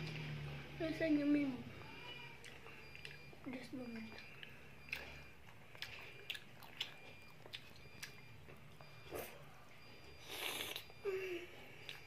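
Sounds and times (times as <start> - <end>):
child chewing with mouth smacks: 2.4 - 12.0.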